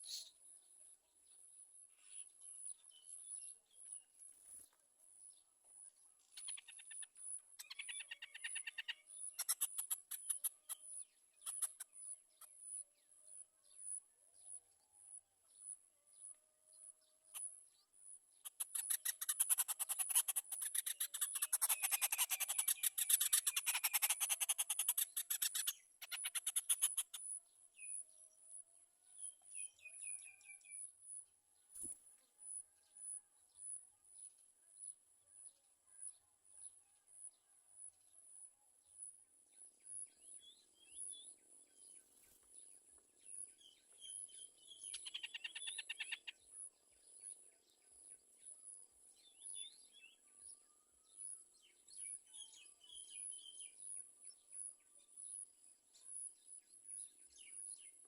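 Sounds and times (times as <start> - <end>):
bulbuls chirping: 0.0 - 0.4.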